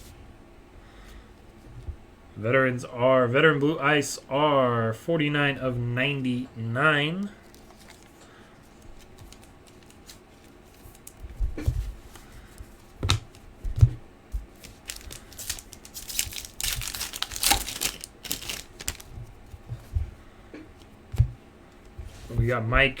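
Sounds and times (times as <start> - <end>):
foil wrapper tearing and crinkling: 14.5 - 19.1.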